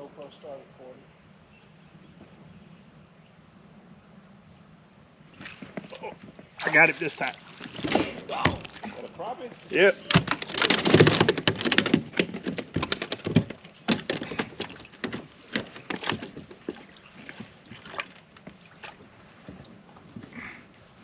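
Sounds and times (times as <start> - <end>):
fish splashing: 6.6 - 8.9
clicks and knocks: 10.0 - 16.8.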